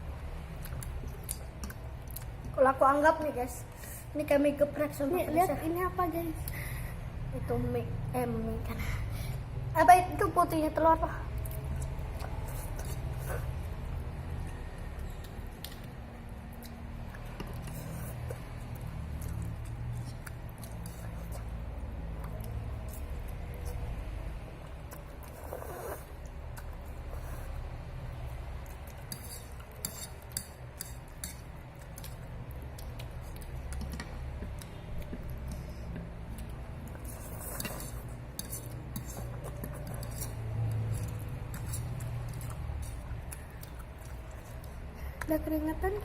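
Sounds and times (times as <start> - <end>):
steady low hum: 0.0 - 46.0
chewing noodles: 11.3 - 44.9.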